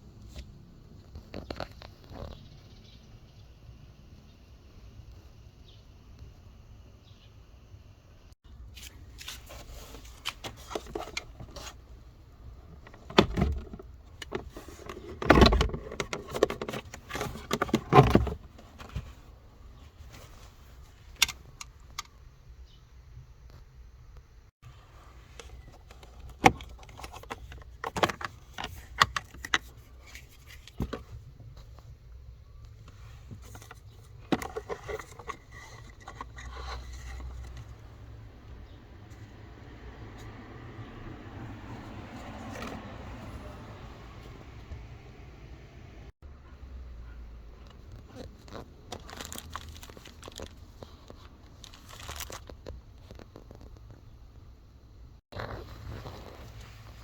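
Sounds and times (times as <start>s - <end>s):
plastic packaging crinkling: 48.1s - 53.7s.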